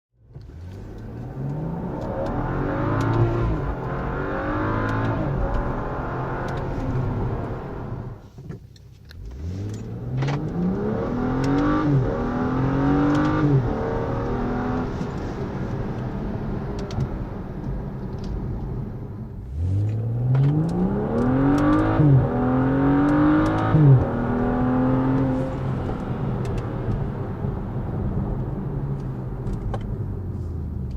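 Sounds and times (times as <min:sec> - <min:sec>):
car engine accelerating hard: 0:00.3 - 0:08.2, 0:09.2 - 0:30.9.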